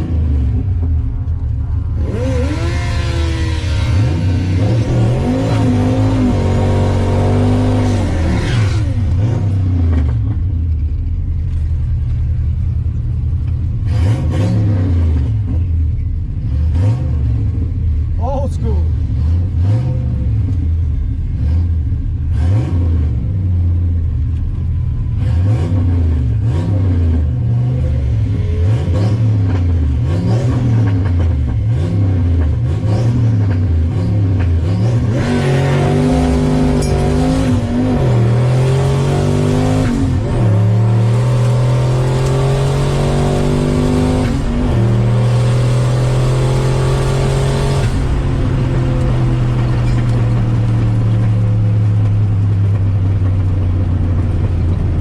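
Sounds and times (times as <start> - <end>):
car engine revving: 0.0 - 55.0
car accelerating through gears: 2.0 - 10.0, 25.2 - 52.1.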